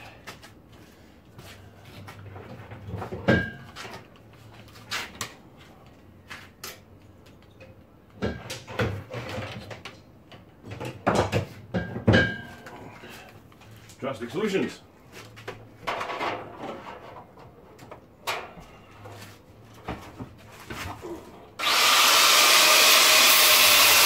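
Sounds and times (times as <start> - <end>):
tools and metal parts clattering: 15.8 - 18.6.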